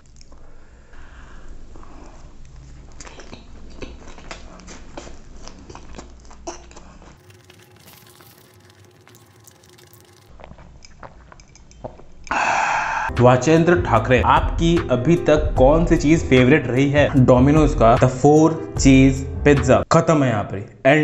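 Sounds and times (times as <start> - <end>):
biting and chewing food: 1.5 - 12.3
wet mouth sounds: 2.4 - 11.1.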